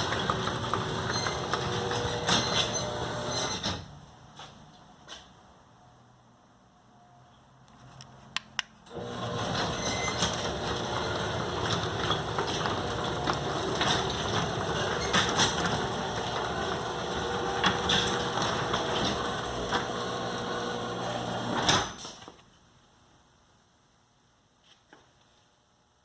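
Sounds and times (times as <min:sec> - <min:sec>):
door and rollers rattling: 0:00.0 - 0:04.0, 0:08.9 - 0:22.3
garage door motor hum: 0:00.0 - 0:04.0, 0:08.8 - 0:22.4.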